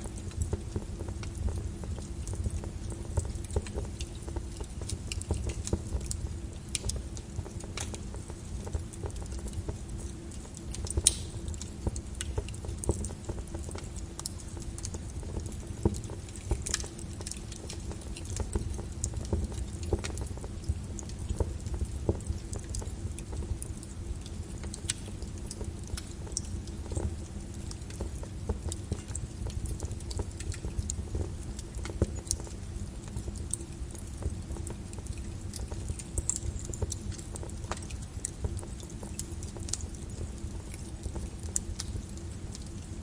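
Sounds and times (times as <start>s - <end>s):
lava crackling and popping: 0.0s - 43.0s.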